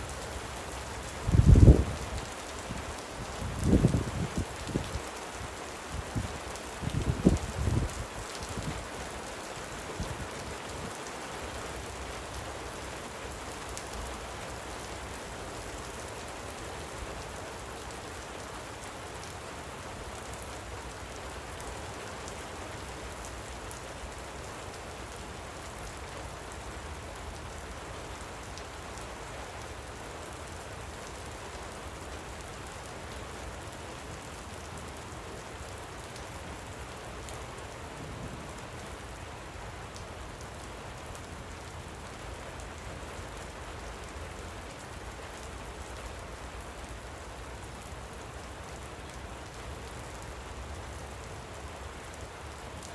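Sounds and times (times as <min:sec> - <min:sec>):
light rain pattering: 0:00.0 - 0:52.9.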